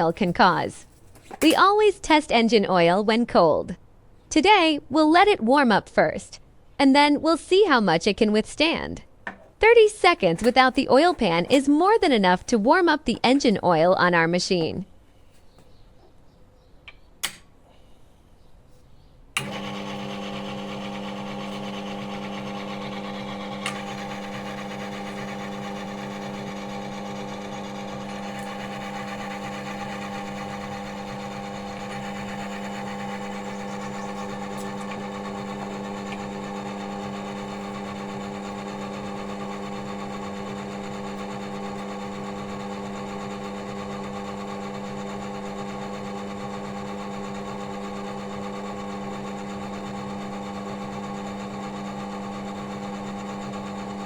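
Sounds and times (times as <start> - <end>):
switch click: 16.9 - 17.5
electric motor humming: 19.4 - 54.0.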